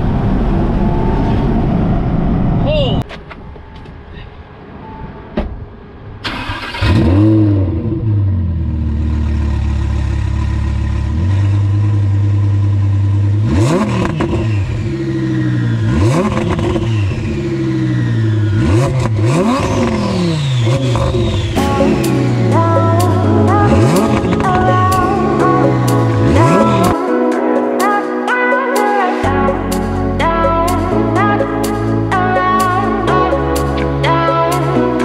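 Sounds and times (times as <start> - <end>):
car engine starting and revving: 6.2 - 27.0.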